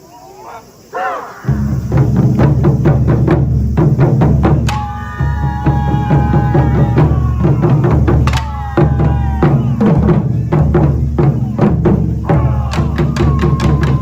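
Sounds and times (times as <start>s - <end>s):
drum ensemble playing: 1.4s - 14.0s.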